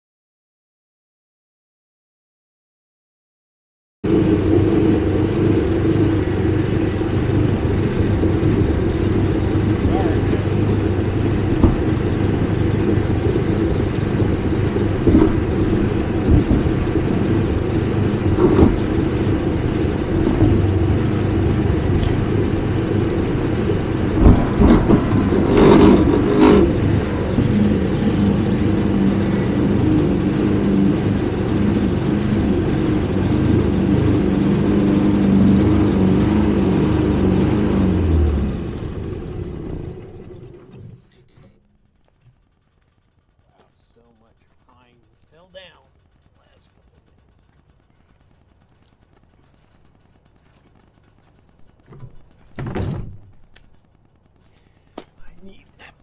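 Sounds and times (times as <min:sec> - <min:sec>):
engine running: 0:04.0 - 0:56.0
clattering knocks: 0:08.3 - 0:27.6.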